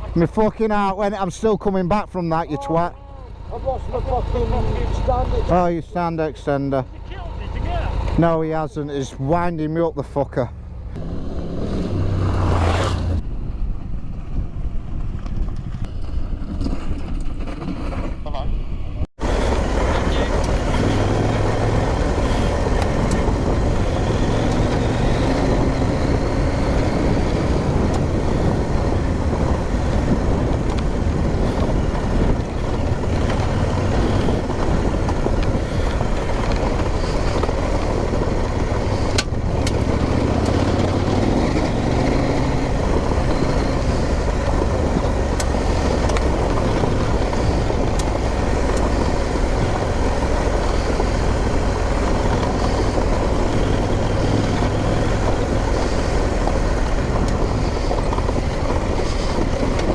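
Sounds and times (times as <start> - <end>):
motorcycle engine revving: 0.0 - 9.4, 10.2 - 59.9
steady rushing noise: 19.2 - 59.9.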